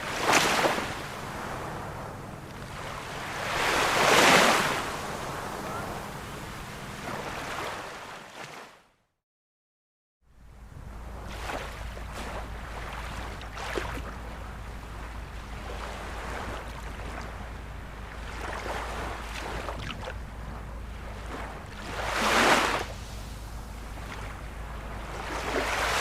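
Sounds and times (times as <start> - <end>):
ocean surf washing in: 0.0 - 8.6, 10.6 - 26.0
wave breaking loudly: 14.9 - 26.0.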